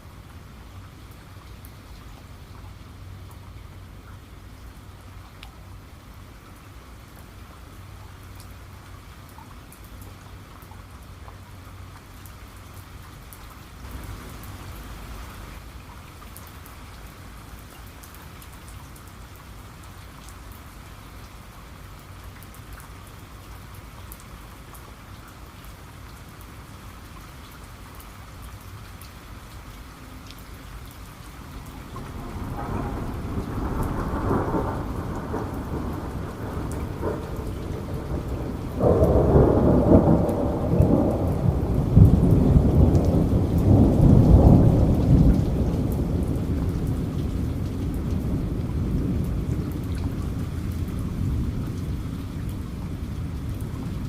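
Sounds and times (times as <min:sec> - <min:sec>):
steady rain: 0:00.0 - 0:54.0
thunder rumbling: 0:31.6 - 0:54.0.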